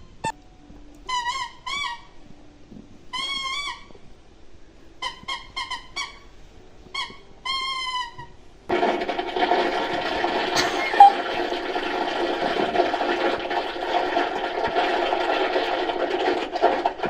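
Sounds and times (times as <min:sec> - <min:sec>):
toilet flushing: 0:08.7 - 0:17.0
short high squeaks: 0:11.0 - 0:11.2.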